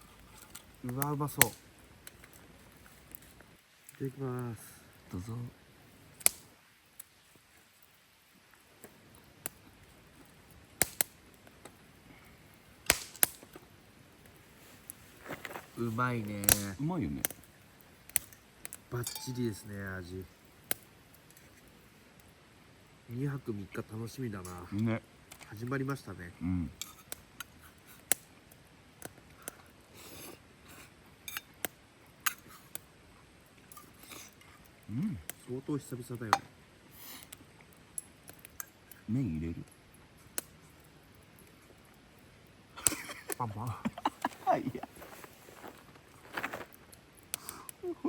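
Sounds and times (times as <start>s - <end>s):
scraping rustle: 14.4s - 16.4s, 43.9s - 47.0s.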